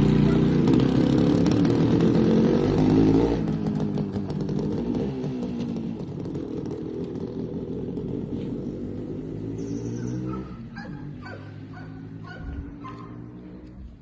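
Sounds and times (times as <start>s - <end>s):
motorcycle engine running: 0.0s - 14.0s
dog yipping: 9.9s - 13.2s.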